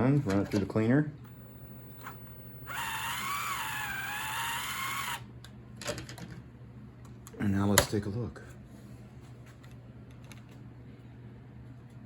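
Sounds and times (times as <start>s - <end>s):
small electric motor whining: 1.3s - 5.2s.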